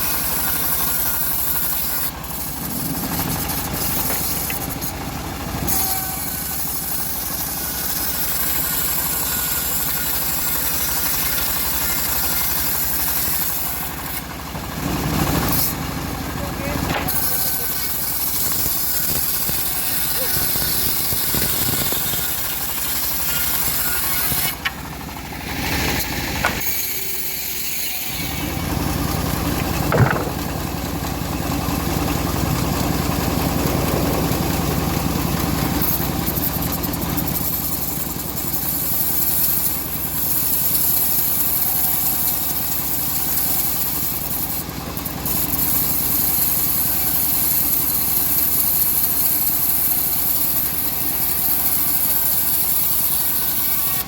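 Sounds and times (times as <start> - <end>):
sawmill engine humming: 0.0 - 54.0
sharp knock: 29.6 - 30.5.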